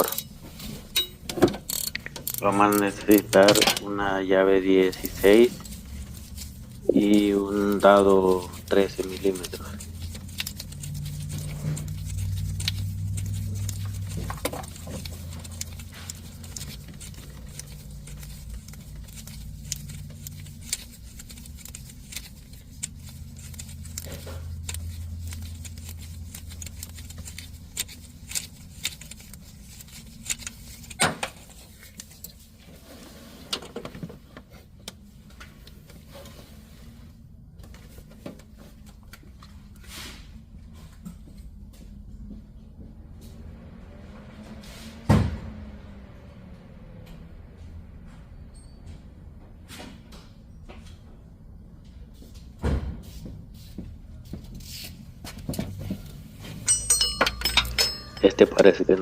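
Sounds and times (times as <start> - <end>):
wrench and socket clinking: 0.0 - 3.8, 56.6 - 58.6
low steady hum: 0.0 - 43.3, 55.5 - 59.0.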